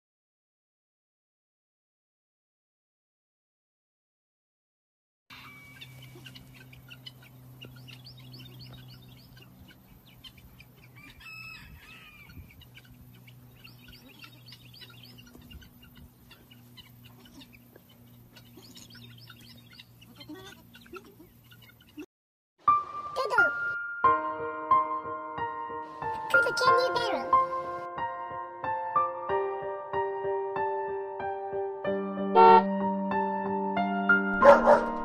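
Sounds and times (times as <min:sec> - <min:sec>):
birds chirping: 0:05.3 - 0:22.1.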